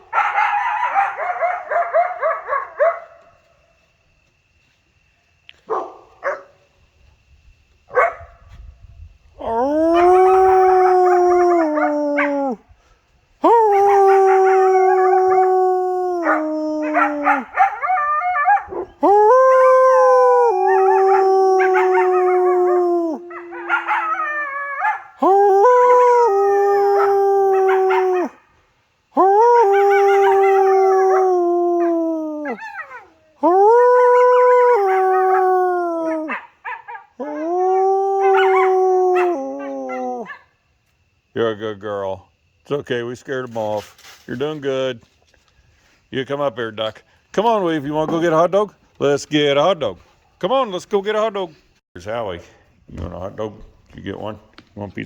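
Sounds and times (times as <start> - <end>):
dog barking: 0.0 - 3.4, 5.7 - 6.6, 7.9 - 8.4, 16.3 - 19.0, 23.3 - 25.2, 36.3 - 37.2, 40.2 - 40.5
dog howling: 9.4 - 12.6, 13.4 - 28.4, 29.2 - 40.4.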